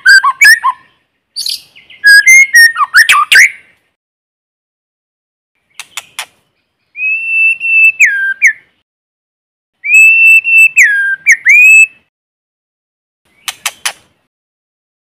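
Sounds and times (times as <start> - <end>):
bird whistled phrases: 0.0 - 3.7, 6.9 - 8.7, 9.8 - 12.1
bird clicks: 5.7 - 6.4, 13.4 - 14.1.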